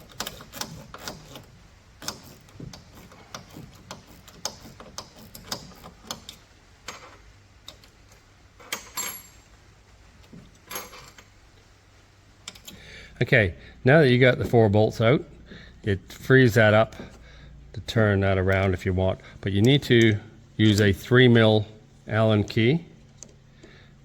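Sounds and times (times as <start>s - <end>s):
spanner clicking on bolts: 0.0s - 9.4s, 12.4s - 12.9s.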